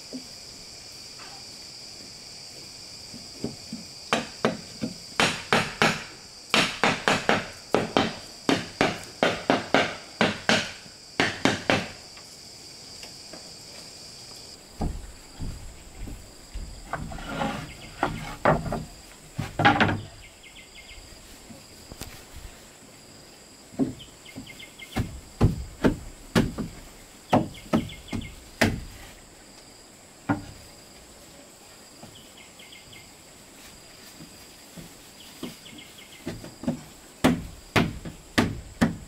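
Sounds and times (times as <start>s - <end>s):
insects chirring: 0.0s - 39.0s
knocks and thumps on wood: 3.1s - 12.0s, 14.8s - 20.2s, 23.7s - 29.0s, 30.3s - 30.6s, 34.8s - 39.0s
hammer striking wood: 4.1s - 12.0s, 37.2s - 39.0s.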